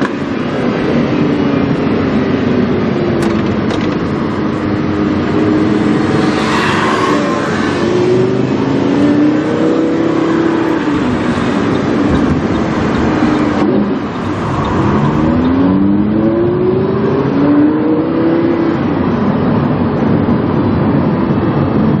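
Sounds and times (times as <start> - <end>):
car engine accelerating: 0.7 - 19.7.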